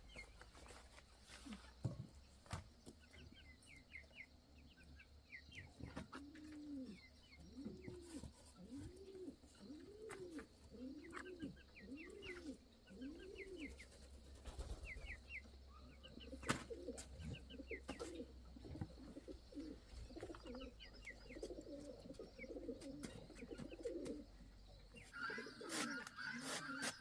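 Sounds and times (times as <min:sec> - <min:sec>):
small birds chirping: 0:00.0 - 0:27.0
pigeons cooing: 0:05.8 - 0:15.2, 0:15.8 - 0:27.0.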